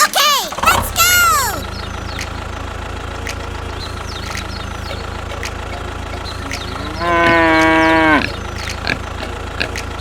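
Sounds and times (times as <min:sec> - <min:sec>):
engine idling: 0:00.5 - 0:10.0.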